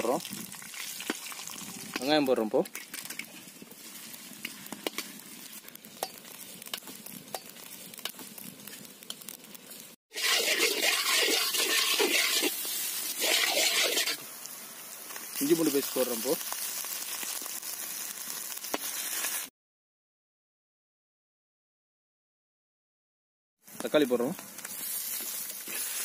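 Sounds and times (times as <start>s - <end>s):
onions sizzling in hot oil: 0.0s - 19.5s, 23.6s - 26.0s
spatula scraping a pan: 10.1s - 14.2s.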